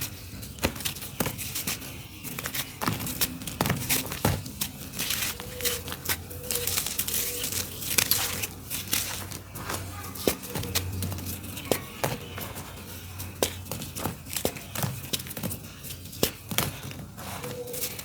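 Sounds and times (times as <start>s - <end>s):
dirt clumps crumbling: 0.5s - 12.9s.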